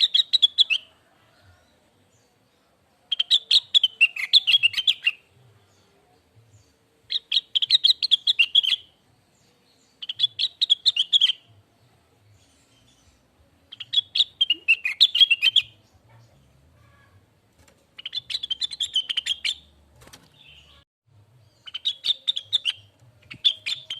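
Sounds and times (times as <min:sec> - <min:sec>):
bird singing rapid high chirps: 0:00.0 - 0:00.9, 0:03.1 - 0:05.3, 0:06.6 - 0:09.0, 0:09.7 - 0:11.5, 0:12.4 - 0:15.9, 0:18.0 - 0:19.7, 0:21.4 - 0:23.9.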